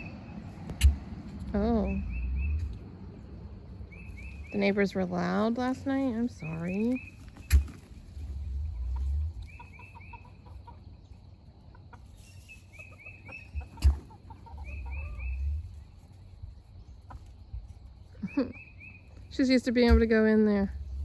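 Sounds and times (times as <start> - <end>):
low rumble: 0.0 - 10.0, 13.5 - 18.2, 19.1 - 21.0
hens clucking: 0.0 - 21.0.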